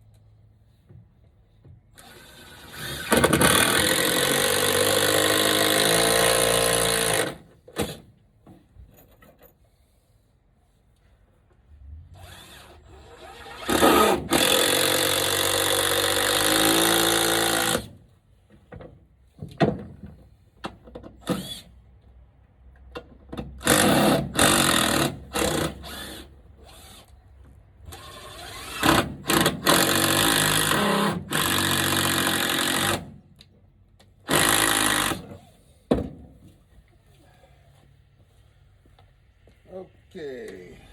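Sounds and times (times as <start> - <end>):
power drill running: 12.2 - 17.9, 34.3 - 35.3.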